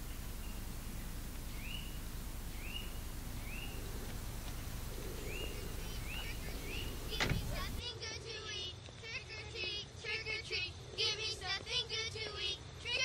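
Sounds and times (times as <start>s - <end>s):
small bird chirping: 0.0s - 7.8s
low outdoor rumble: 0.0s - 8.7s.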